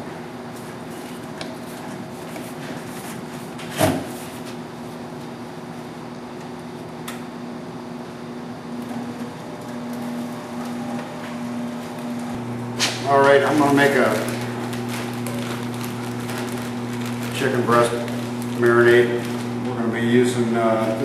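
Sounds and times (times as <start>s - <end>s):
tumbler motor humming: 5.0s - 21.0s.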